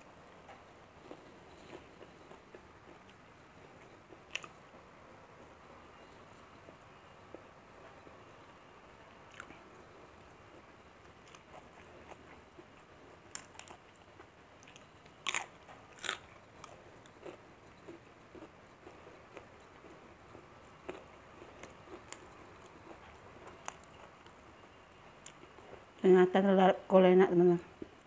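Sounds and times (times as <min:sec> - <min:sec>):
person chewing food: 0:00.4 - 0:04.8, 0:09.3 - 0:25.8.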